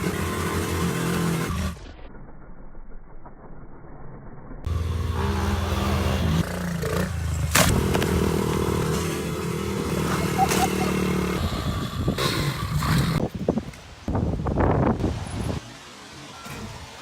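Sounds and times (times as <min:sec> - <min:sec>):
pit bike engine running: 0:00.0 - 0:03.3, 0:04.3 - 0:13.2.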